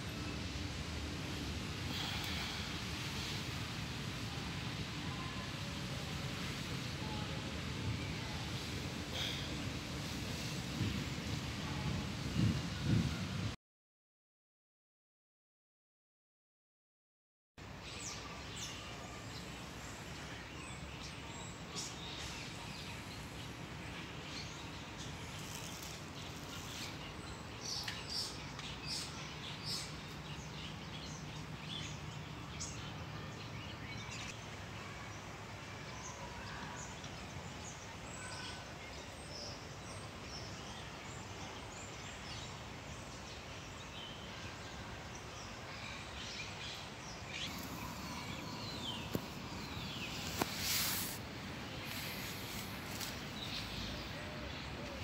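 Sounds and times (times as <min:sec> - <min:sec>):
outdoor background hiss: 0:00.0 - 0:13.6, 0:17.6 - 0:55.0
small birds chirping: 0:45.1 - 0:55.0.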